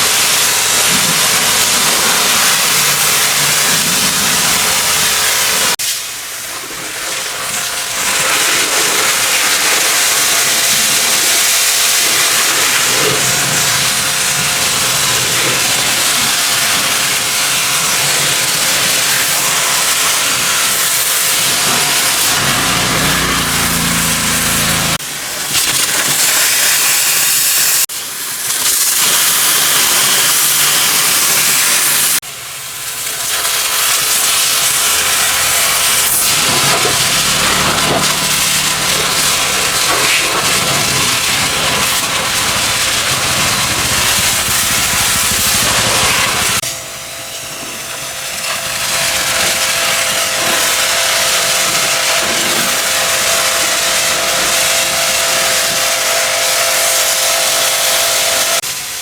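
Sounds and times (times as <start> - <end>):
pressure washer spray hissing: 0.0 - 46.7
pump humming: 7.8 - 25.4, 29.0 - 59.0.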